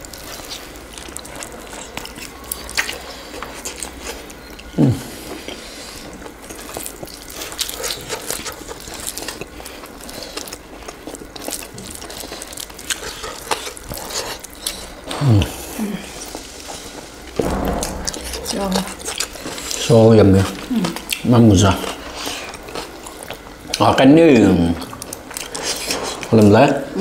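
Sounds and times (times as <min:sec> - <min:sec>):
chewing and crunching: 0:00.0 - 0:17.4, 0:18.9 - 0:27.0
brief falling pitched sound: 0:17.4 - 0:19.2.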